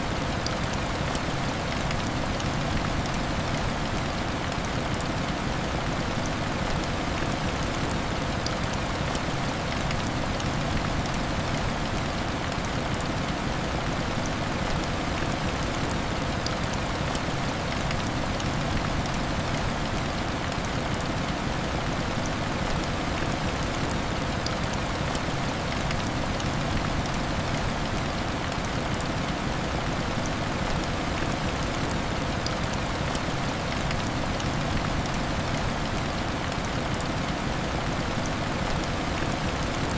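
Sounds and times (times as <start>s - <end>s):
raindrops ticking: 0.0s - 39.9s
heavy rain on window glass: 0.1s - 39.9s.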